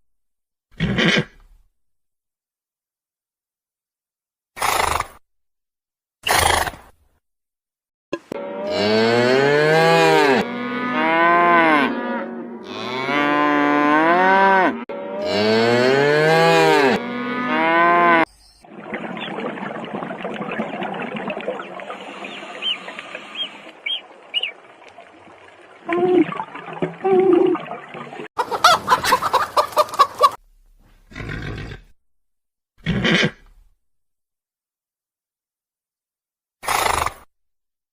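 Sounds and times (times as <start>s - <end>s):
cow mooing: 8.3s - 18.3s.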